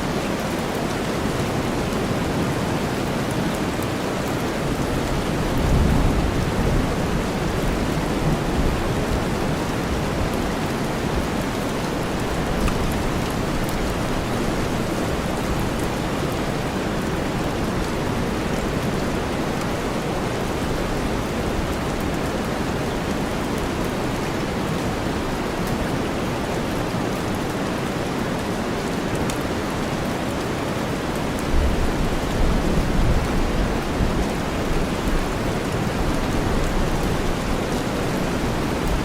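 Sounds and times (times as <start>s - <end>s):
steady rain: 0.0s - 39.0s
low rumble of thunder: 5.2s - 10.3s.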